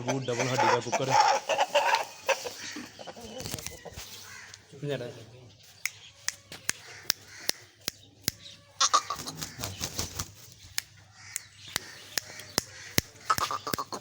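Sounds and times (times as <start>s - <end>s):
rooster clucking: 0.0s - 4.6s, 6.1s - 10.0s, 11.2s - 14.0s
sharp clicks: 5.8s - 8.5s, 10.6s - 14.0s.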